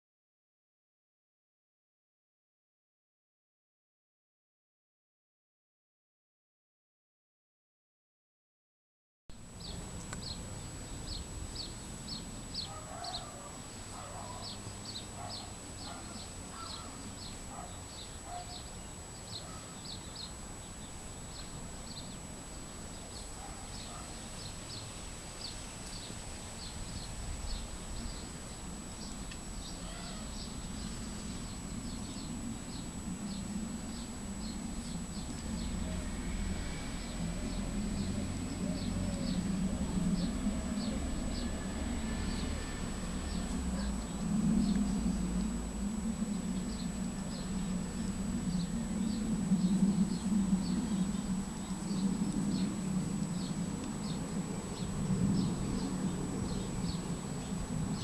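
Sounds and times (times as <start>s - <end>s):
faint high whine: 9.3s - 58.0s
birds chirping: 9.6s - 45.7s, 46.4s - 58.0s
low rumble: 26.6s - 58.0s.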